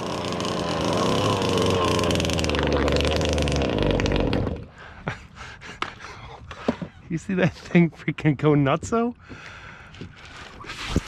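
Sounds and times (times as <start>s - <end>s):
boat two-stroke engine running: 0.0s - 4.7s.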